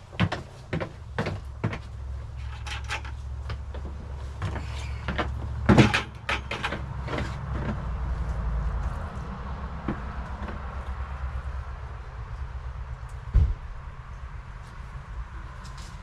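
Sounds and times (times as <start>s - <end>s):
objects knocking and clattering: 0.2s - 7.8s.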